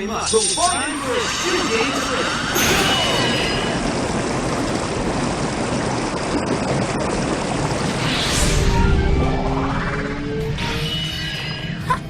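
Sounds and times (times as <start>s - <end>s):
gushing water torrent: 1.2s - 8.2s.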